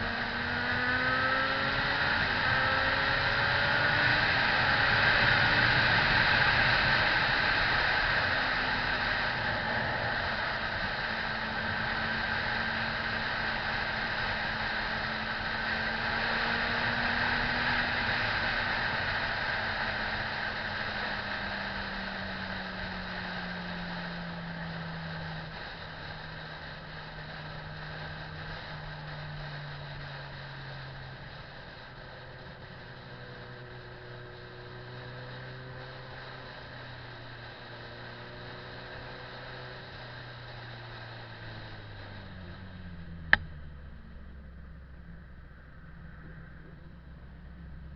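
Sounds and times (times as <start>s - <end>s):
motorcycle engine running: 0.0s - 47.9s
road noise: 0.0s - 47.9s.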